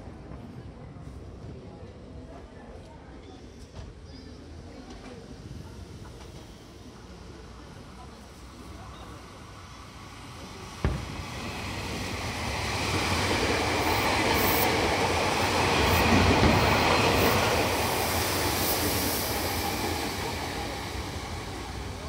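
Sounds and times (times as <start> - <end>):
train wheels on rails: 4.7 - 22.0.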